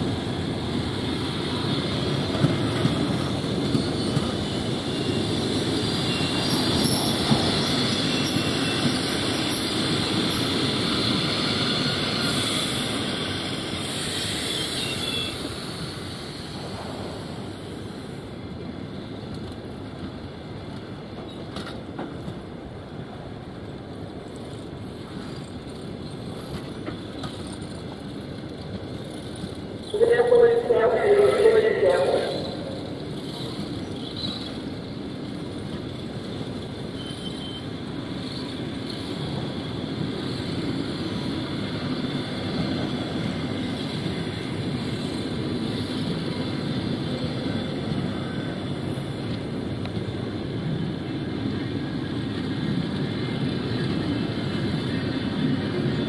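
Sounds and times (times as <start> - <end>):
train wheels over rail joints: 0.0 - 30.0, 32.4 - 56.0
high-pitched wheel squeal: 37.0 - 37.7.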